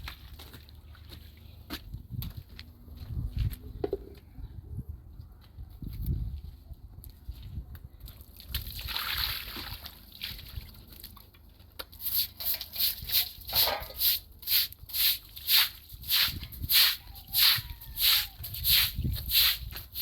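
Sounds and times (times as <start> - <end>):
water sloshing and splashing: 0.0 - 1.7, 8.2 - 14.0.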